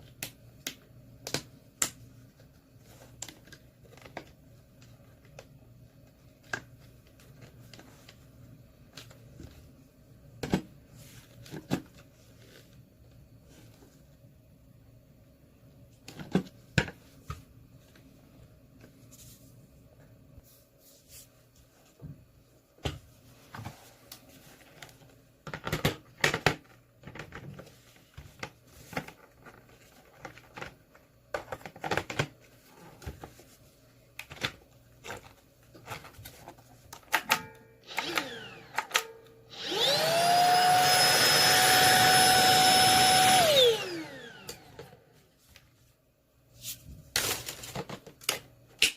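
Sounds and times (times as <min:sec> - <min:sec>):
vacuum motor whining: 0:37.8 - 0:45.0.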